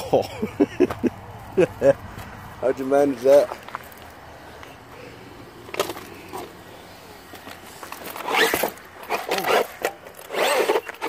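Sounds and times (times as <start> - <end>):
electric rc truck driving on dirt: 5.6 - 11.0.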